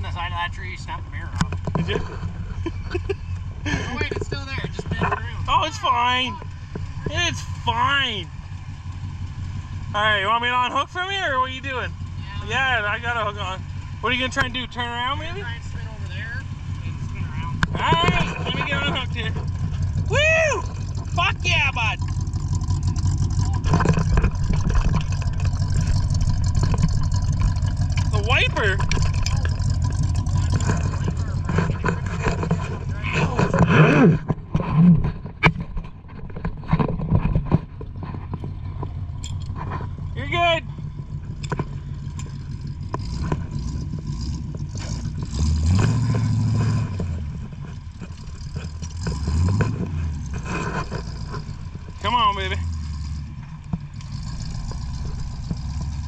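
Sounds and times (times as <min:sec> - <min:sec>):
engine rumbling at low revs: 0:00.0 - 0:56.0
sharp clicks and knocks: 0:01.3 - 0:05.2, 0:22.0 - 0:52.1.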